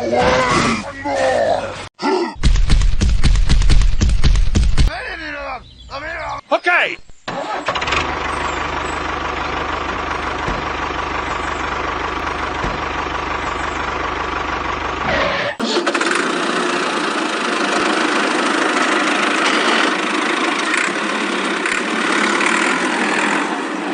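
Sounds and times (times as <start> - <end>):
low rumbling engine: 7.1 - 23.9
higher thinner engine sound: 7.4 - 23.9.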